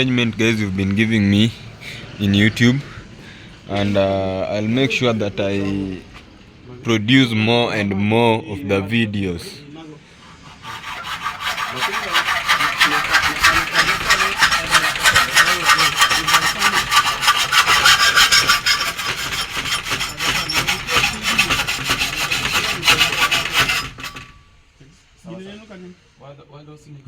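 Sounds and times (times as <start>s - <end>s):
hand tool rasping: 10.2s - 24.4s.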